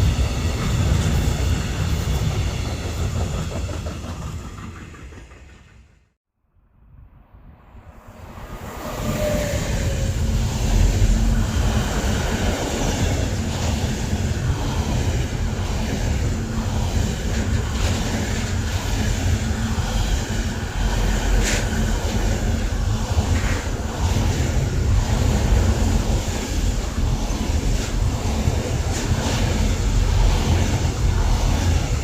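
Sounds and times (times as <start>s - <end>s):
sharp clack of train: 0.0s - 6.1s, 9.0s - 32.0s
train wheels rumbling on rail: 0.0s - 6.2s, 8.0s - 32.0s.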